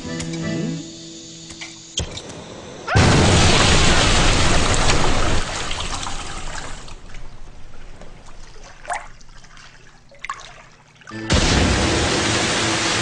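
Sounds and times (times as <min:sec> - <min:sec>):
music: 0:00.0 - 0:01.5, 0:11.1 - 0:13.0
water trickling: 0:04.8 - 0:11.2
water drips plinking: 0:05.7 - 0:11.2
loud rush of noise: 0:11.3 - 0:13.0.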